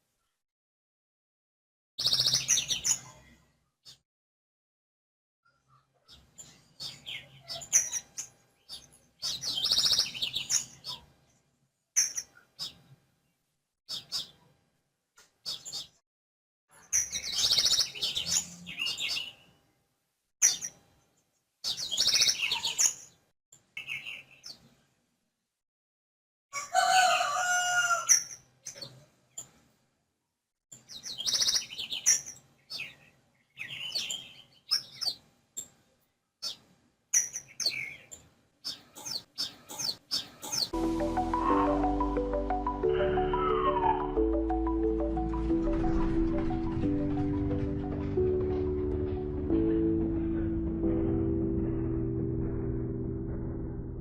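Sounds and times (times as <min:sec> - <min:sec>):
small birds chirping: 0:02.0 - 0:04.0, 0:05.5 - 0:11.4, 0:12.0 - 0:13.0, 0:13.9 - 0:14.6, 0:15.2 - 0:16.0, 0:16.7 - 0:19.6, 0:20.4 - 0:20.8, 0:21.6 - 0:24.8, 0:28.1 - 0:29.6, 0:30.7 - 0:41.9.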